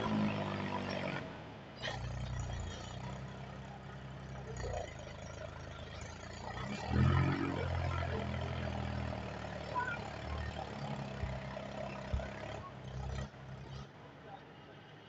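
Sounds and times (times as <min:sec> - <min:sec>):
tractor diesel engine running: 0:01.8 - 0:14.1.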